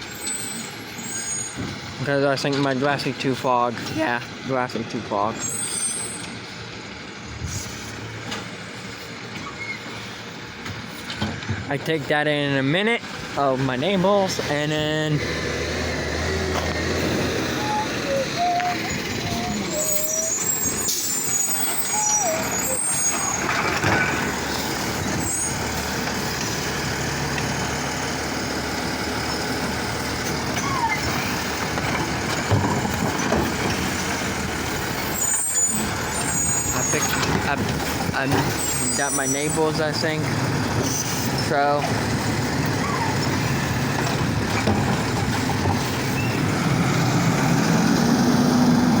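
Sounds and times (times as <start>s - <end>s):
garbage truck engine running: 0.0s - 49.0s.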